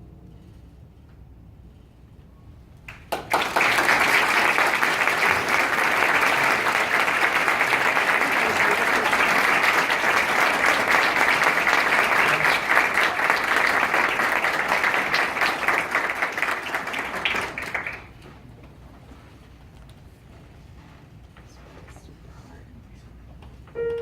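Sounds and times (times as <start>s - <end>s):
audience applauding: 2.9s - 18.2s.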